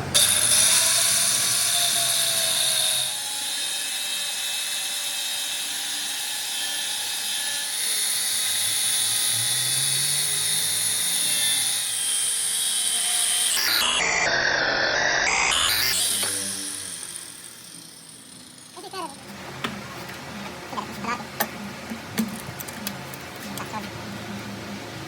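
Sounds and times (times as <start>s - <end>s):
machine tool whining on metal: 0.0s - 19.3s.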